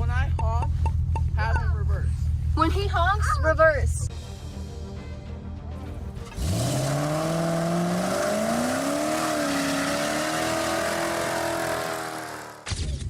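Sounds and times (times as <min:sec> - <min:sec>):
car engine revving: 0:06.2 - 0:12.7.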